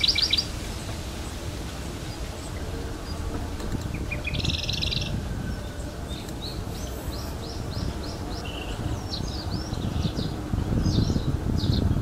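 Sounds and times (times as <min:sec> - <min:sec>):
bicycle rumble: 0:00.0 - 0:12.0
songbirds singing: 0:00.0 - 0:12.0.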